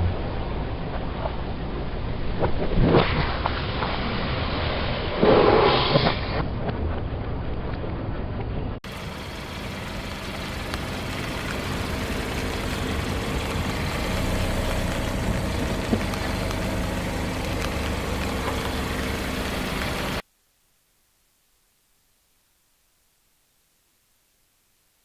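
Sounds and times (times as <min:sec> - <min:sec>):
car engine idling: 0:08.8 - 0:20.2.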